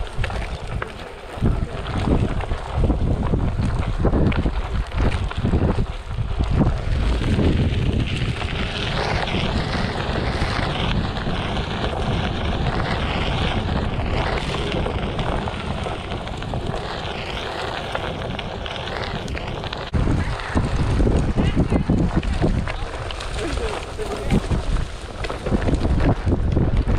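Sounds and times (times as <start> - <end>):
wind buffeting microphone: 0.0 - 26.9
tyre rolling over dirt: 6.6 - 26.9.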